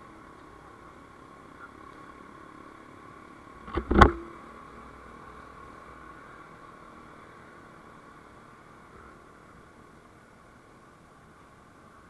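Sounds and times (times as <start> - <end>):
vehicle cabin noise: 3.5 - 4.5
sharp thumps: 3.6 - 4.4.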